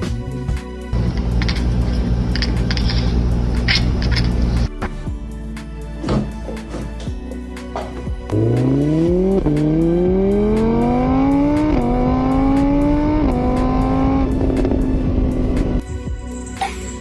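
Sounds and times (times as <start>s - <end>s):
car engine accelerating: 8.3s - 15.8s.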